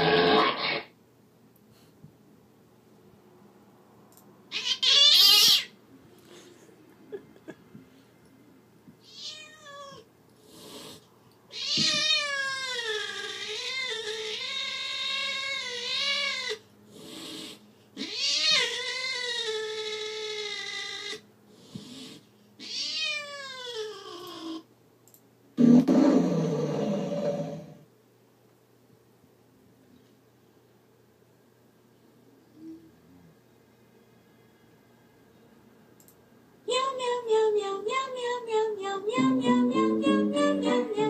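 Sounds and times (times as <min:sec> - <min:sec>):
recorded cat yowls: 0:00.0 - 0:00.9, 0:04.5 - 0:05.8, 0:09.1 - 0:10.0, 0:11.5 - 0:16.6, 0:18.0 - 0:21.2, 0:22.6 - 0:24.6.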